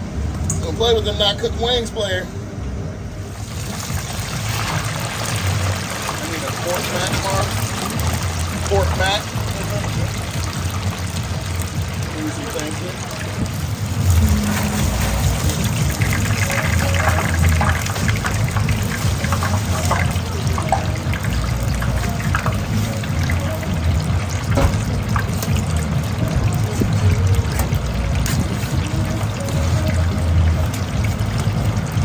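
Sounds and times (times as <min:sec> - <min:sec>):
running liquid noise: 0:03.4 - 0:32.0.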